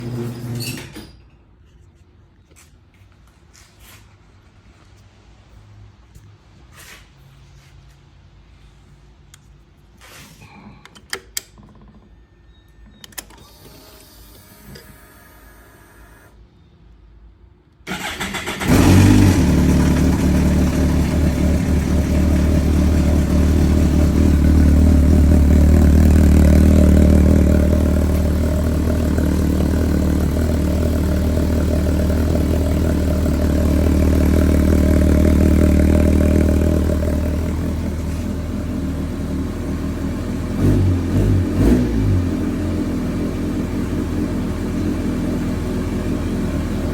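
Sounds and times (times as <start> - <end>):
electric starter cranking engine: 17.9 - 21.3
motorcycle engine idling loudly: 18.8 - 37.9.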